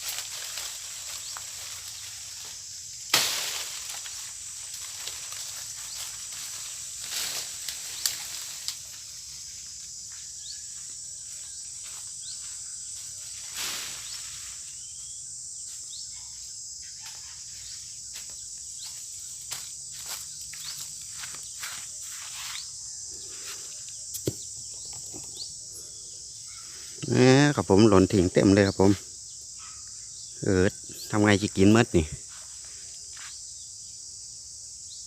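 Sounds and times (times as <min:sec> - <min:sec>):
rustling through dry leaves: 0:00.0 - 0:10.0, 0:11.2 - 0:15.0, 0:17.2 - 0:23.7
high-pitched insect chorus: 0:00.0 - 0:35.0.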